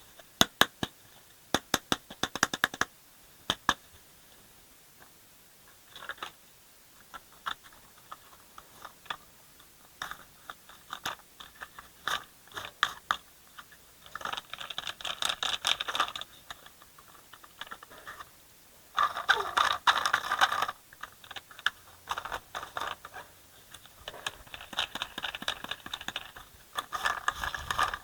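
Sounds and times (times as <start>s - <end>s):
crunchy scraping: 19.0s - 28.0s.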